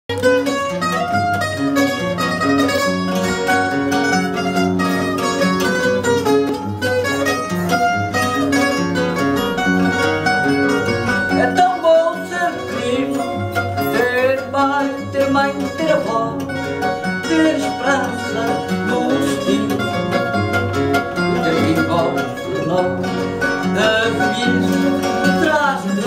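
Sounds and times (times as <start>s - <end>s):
picked guitar melody: 0.1s - 26.0s
strummed bass accompaniment: 0.1s - 26.0s.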